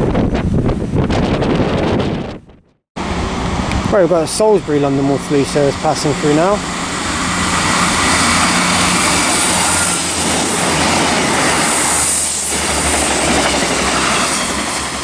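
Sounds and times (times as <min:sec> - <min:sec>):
low diesel engine: 0:03.0 - 0:14.0
train wheels rail noise: 0:03.0 - 0:15.0.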